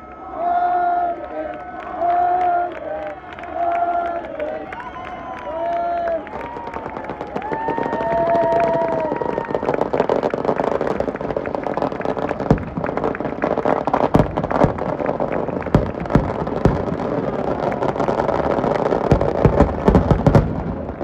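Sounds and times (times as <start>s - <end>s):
crowd noise: 0.0s - 21.0s
firecracker bangs: 6.5s - 21.0s.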